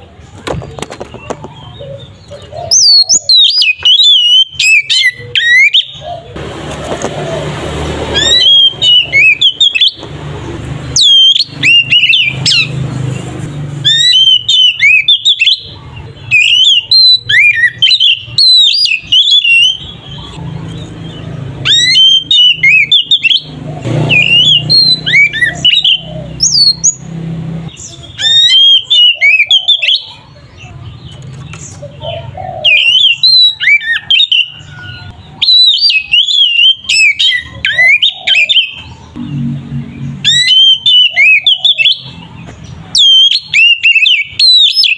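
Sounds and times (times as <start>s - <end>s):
bird singing rapid whistles: 2.0s - 6.1s, 8.1s - 10.1s, 10.8s - 12.8s, 13.7s - 27.1s, 27.7s - 30.2s, 32.6s - 39.4s, 40.0s - 44.9s.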